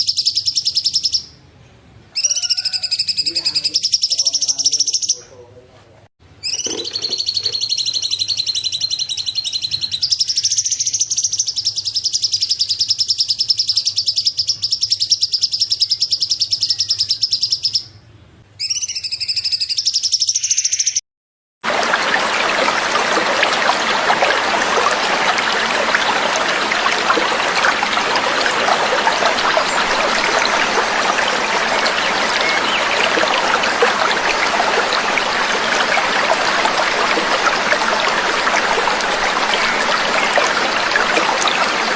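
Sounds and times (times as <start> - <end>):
songbird trilling: 6.4 - 9.0
trickling water: 6.5 - 8.1, 21.6 - 41.9.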